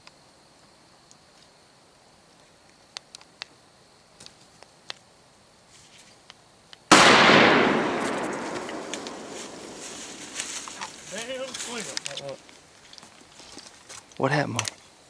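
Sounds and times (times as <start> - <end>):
shotgun shot with echo: 6.9 - 10.4
faint ticks: 8.8 - 14.9.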